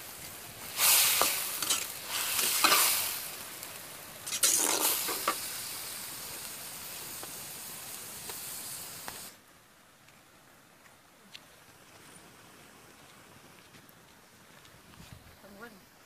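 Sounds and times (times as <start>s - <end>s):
food sizzling in a wok: 0.0s - 9.4s
spoon scraping a wok: 0.7s - 3.2s, 4.3s - 5.4s.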